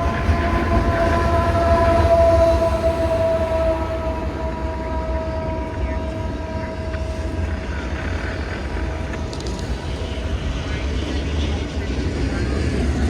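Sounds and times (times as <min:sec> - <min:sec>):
train horn chord: 0:00.0 - 0:09.1
train rumble: 0:00.0 - 0:13.0.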